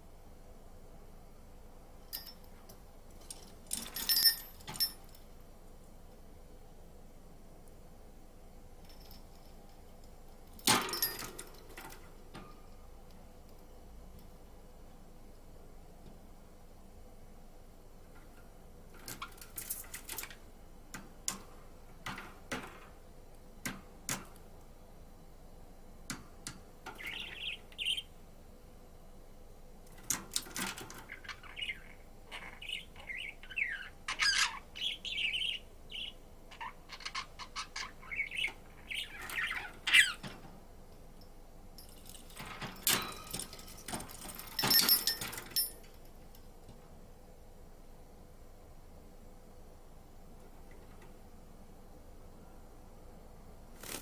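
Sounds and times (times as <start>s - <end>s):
budgerigar chirping and warbling: 31.1s - 40.2s.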